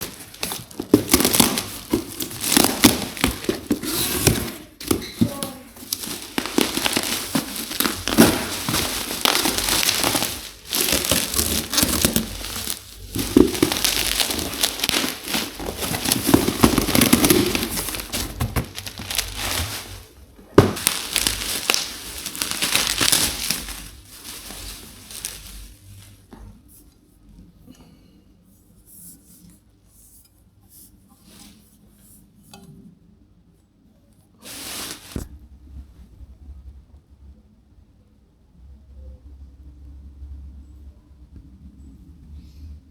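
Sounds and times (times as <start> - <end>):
packaging crinkling and rustling: 0.0 - 26.6, 34.4 - 35.3.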